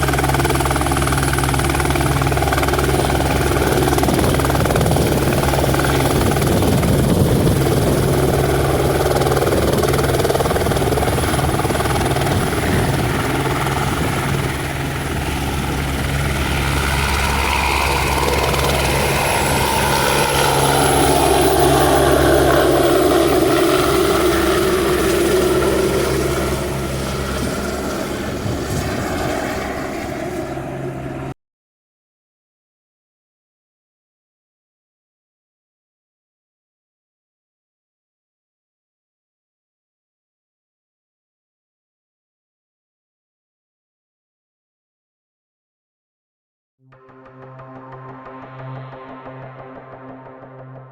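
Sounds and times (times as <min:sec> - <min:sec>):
helicopter rotor and turbine: 0:00.0 - 0:31.4, 0:46.9 - 0:50.9.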